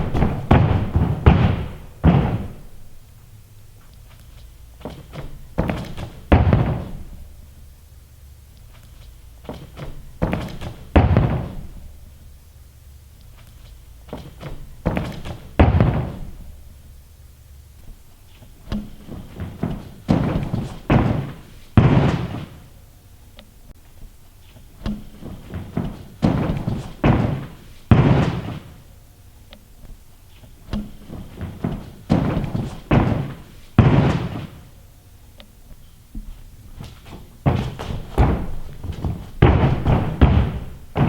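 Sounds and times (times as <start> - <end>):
hands and feet thumping gym floor: 0.0 - 3.0, 3.8 - 7.6, 8.7 - 12.2, 13.3 - 16.9, 17.8 - 22.7, 24.0 - 28.9, 29.8 - 34.8, 35.4 - 41.0
heavy landing thud: 0.0 - 3.8, 4.6 - 7.8, 9.3 - 12.4, 13.8 - 17.0, 17.9 - 22.8, 24.5 - 28.9, 29.9 - 34.9, 35.8 - 41.0.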